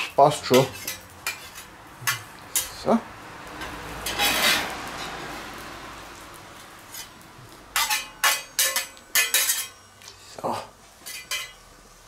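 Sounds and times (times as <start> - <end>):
bacon and onions sizzling: 0.0 - 12.0
metal utensil clinking pot: 7.8 - 9.9, 11.0 - 11.6.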